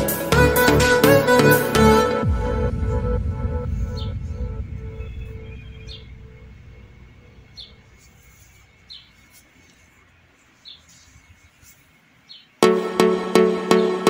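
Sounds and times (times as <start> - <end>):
background music: 0.0 - 7.6, 12.6 - 14.0
bird chirping: 3.6 - 12.7.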